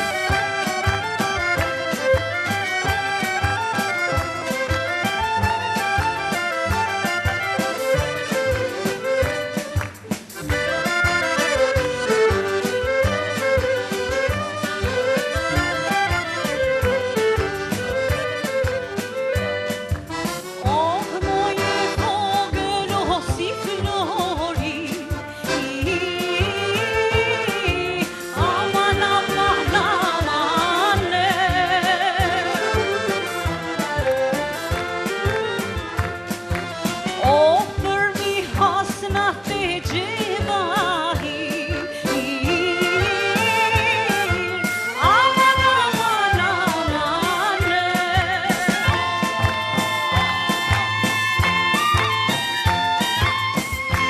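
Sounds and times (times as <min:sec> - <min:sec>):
accordion melody: 0:00.0 - 0:54.0
steady drum beat: 0:00.0 - 0:54.0
woman singing: 0:20.6 - 0:33.3, 0:37.2 - 0:50.6.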